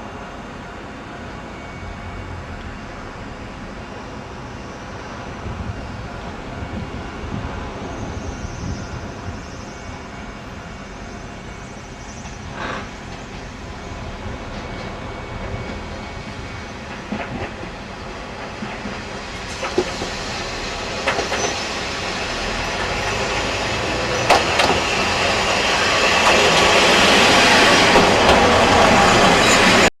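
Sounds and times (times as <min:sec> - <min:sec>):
diesel train running: 0:00.0 - 0:29.9
wheels clacking over rail joints: 0:24.0 - 0:25.4.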